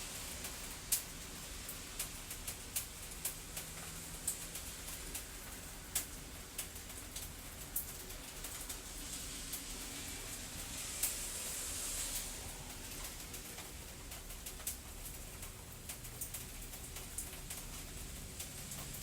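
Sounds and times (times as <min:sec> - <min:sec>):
steady hiss: 0:00.0 - 0:19.0
fireplace crackling and popping: 0:00.4 - 0:08.9.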